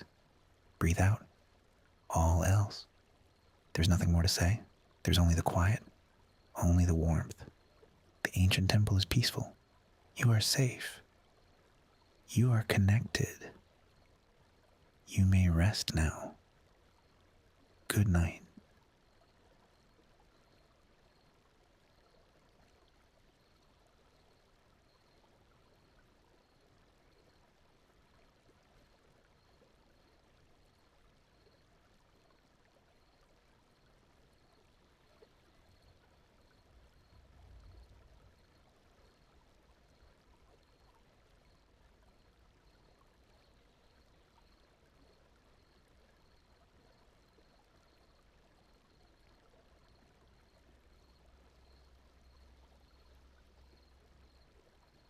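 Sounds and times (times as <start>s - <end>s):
faint flowing water: 0.0s - 55.0s
faint high pulsing tone: 2.1s - 2.8s, 3.8s - 9.5s.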